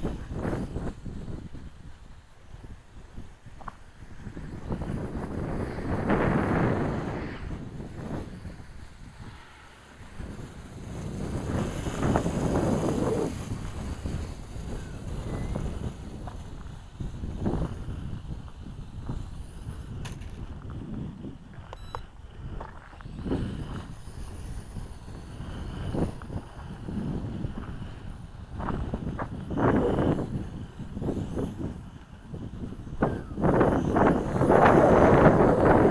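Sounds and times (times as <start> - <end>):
wind buffeting microphone: 0.0 - 35.9
quadcopter motors whining: 2.5 - 18.2, 21.5 - 35.9.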